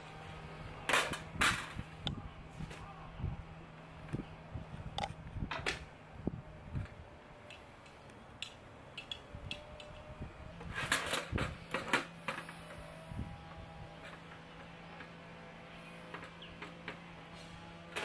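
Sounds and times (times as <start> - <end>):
sharp clicks and light knocks: 6.8 - 10.1.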